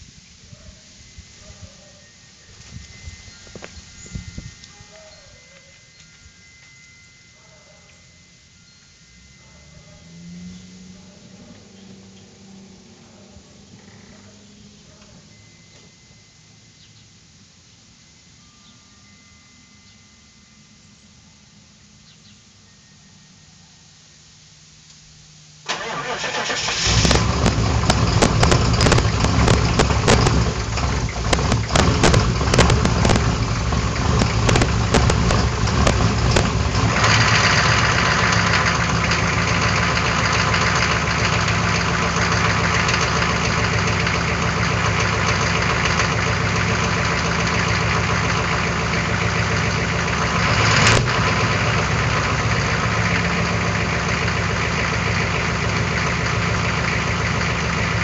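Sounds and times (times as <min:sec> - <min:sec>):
diesel engine idling: 0:25.6 - 0:58.0.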